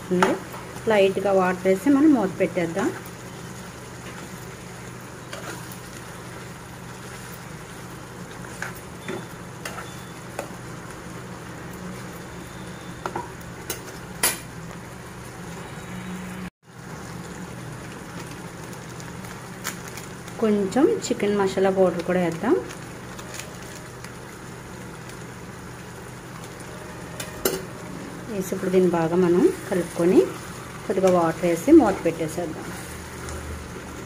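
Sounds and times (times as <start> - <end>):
chicken sizzling in a pan: 0.0 - 15.8, 16.7 - 34.0.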